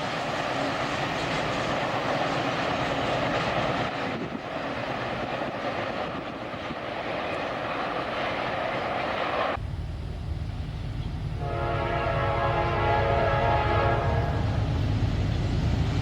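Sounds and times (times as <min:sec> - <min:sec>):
train rolling past: 0:00.0 - 0:16.0
locomotive low rumble: 0:09.6 - 0:16.0
locomotive air horn: 0:11.4 - 0:14.7.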